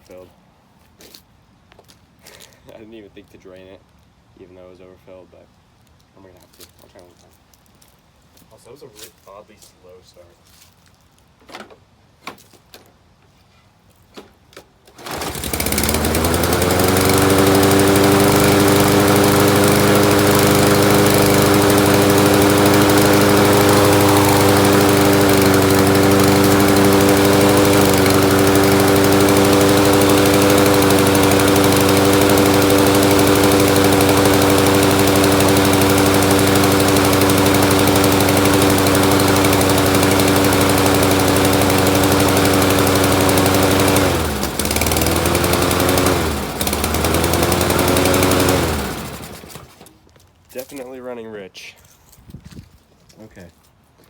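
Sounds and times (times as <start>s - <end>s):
lawn mower engine running: 14.9s - 50.0s.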